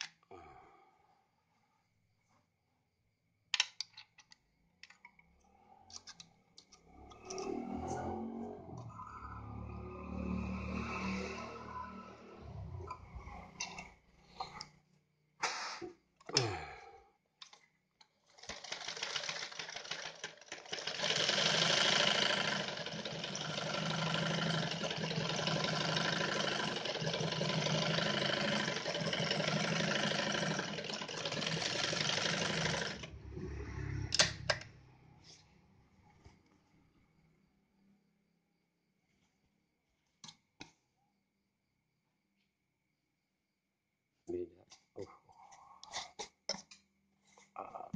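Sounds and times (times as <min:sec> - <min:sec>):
sewing machine stitching: 0:18.3 - 0:34.6.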